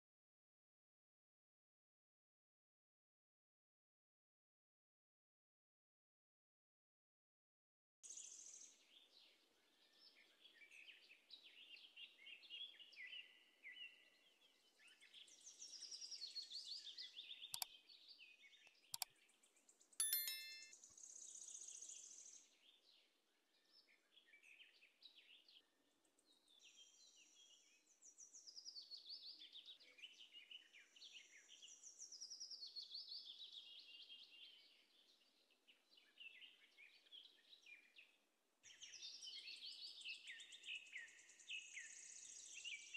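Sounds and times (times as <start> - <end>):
brief ringing tone: 20.0 - 20.7.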